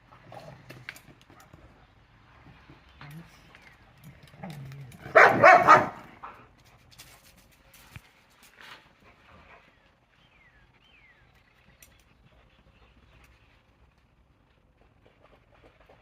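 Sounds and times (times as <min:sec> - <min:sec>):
dog barking: 0:05.1 - 0:06.1.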